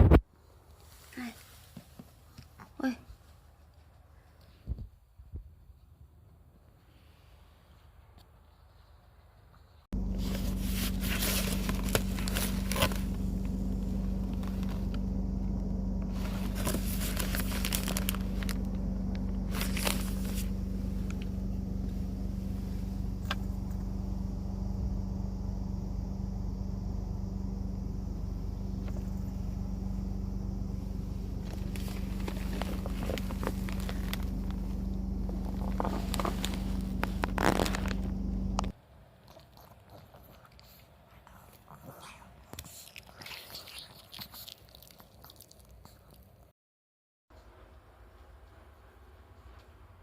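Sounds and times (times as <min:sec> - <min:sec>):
low mechanical hum: 0:09.6 - 0:39.1
crackling handling noise: 0:10.0 - 0:25.1, 0:28.0 - 0:38.8.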